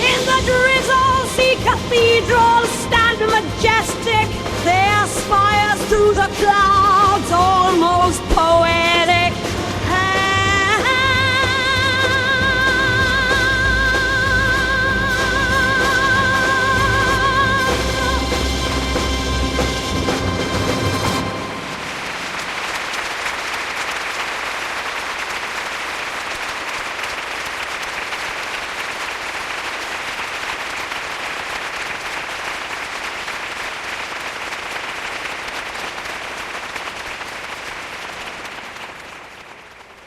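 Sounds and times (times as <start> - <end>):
heavy rainfall: 17.8 - 40.0.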